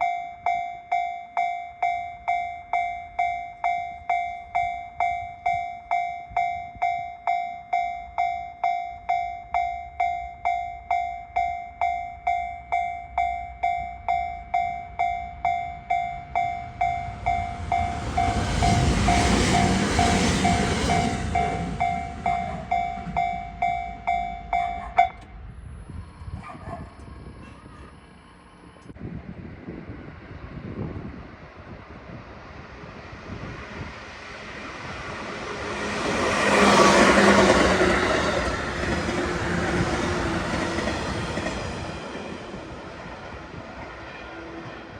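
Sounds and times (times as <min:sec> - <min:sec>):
train rumbling past: 0:01.8 - 0:44.9
level crossing bell dinging: 0:21.4 - 0:25.3.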